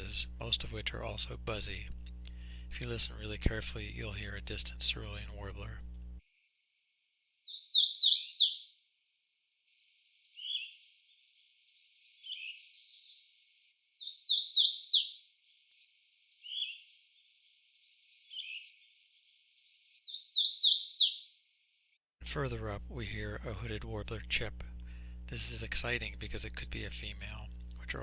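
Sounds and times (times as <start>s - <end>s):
vireo buzzy phrases: 0.0s - 6.2s, 22.2s - 28.0s
warbler singing: 0.0s - 6.2s.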